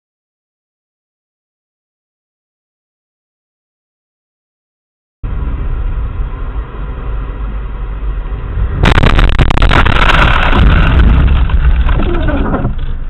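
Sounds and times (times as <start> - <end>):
car road rumble: 5.2 - 13.0
crackling and scraping: 8.8 - 13.0
loud car crash: 8.8 - 13.0.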